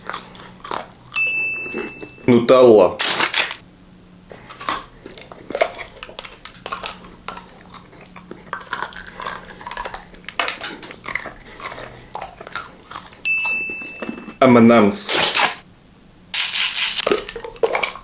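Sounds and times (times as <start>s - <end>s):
mouth smacks and chewing: 4.3s - 14.3s, 17.0s - 18.0s.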